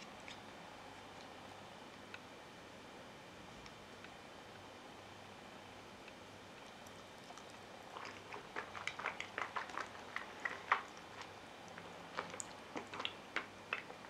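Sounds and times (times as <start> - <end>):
wet chewing and lip smacks: 6.6 - 14.0.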